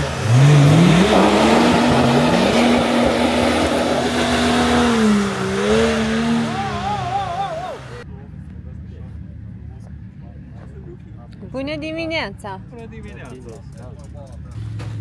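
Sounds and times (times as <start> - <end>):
engine revving: 0.0 - 8.0
tyres rushing over terrain: 0.0 - 8.0.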